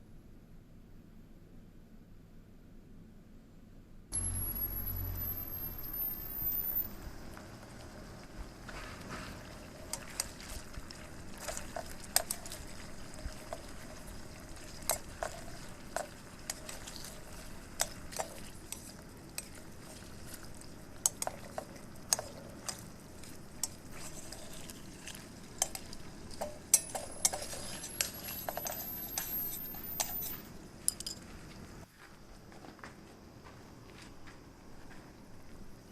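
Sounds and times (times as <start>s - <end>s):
low background noise: 0.0s - 35.9s
metal utensil clinking on skillet: 25.6s - 31.2s.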